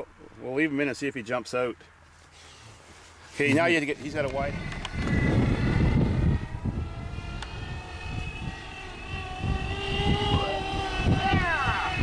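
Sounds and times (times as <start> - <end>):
engine drone: 3.6 - 12.0
gusty low rumble: 3.9 - 12.0.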